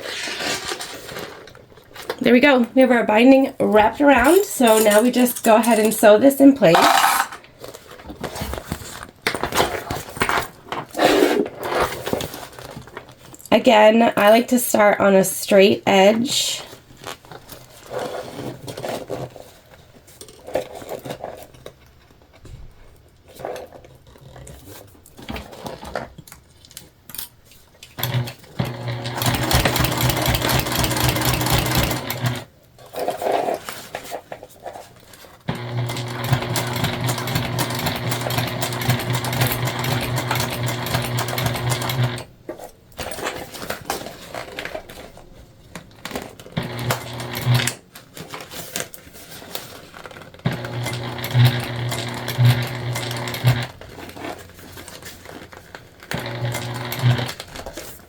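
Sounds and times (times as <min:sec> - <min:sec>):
sewing machine stitching: 0:06.7 - 0:07.4, 0:28.0 - 0:32.5, 0:35.5 - 0:42.3, 0:46.5 - 0:47.8, 0:50.4 - 0:54.4, 0:56.0 - 0:57.8.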